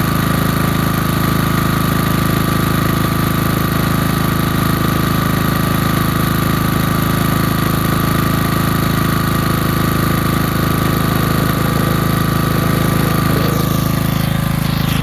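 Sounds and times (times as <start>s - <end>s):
generator engine running: 9.4s - 14.9s.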